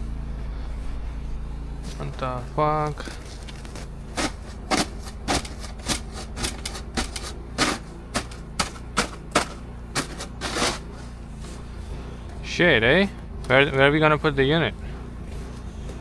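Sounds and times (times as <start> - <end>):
steady low hum: 0.0 - 16.0
snow shovel scraping snow: 3.0 - 11.8.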